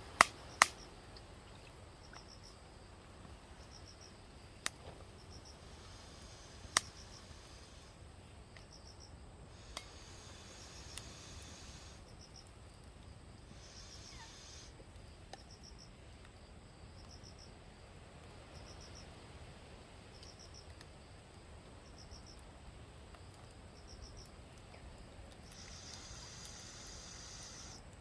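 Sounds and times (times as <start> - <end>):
crickets chirping: 0.0 - 28.0
faint low background noise: 0.0 - 28.0
insect high trill: 5.2 - 8.0, 8.7 - 12.4, 13.5 - 14.8, 25.5 - 27.9.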